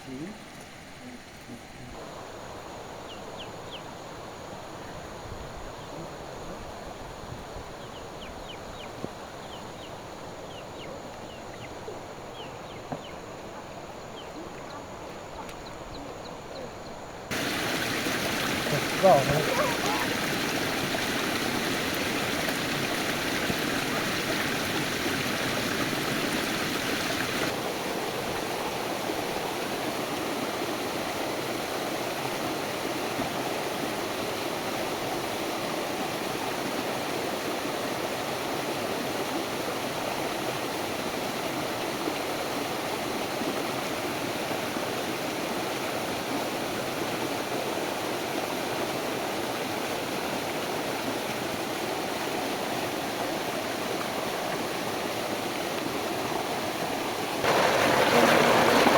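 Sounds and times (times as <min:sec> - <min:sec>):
stream water rushing: 0:17.3 - 0:58.9.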